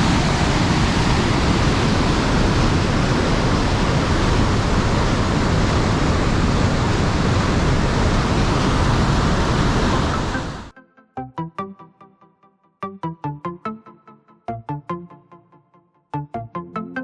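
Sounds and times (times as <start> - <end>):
waterfall roaring: 0.0 - 10.7.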